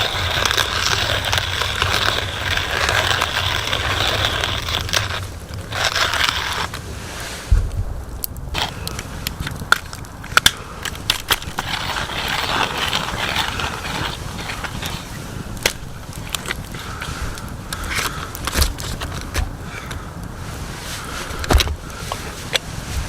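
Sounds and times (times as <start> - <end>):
hand coffee mill grinding: 0.0 - 6.8, 8.6 - 20.0.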